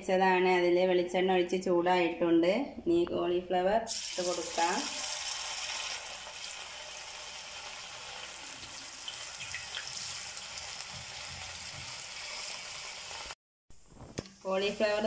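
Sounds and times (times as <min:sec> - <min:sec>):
food sizzling in oil: 0:03.9 - 0:13.4.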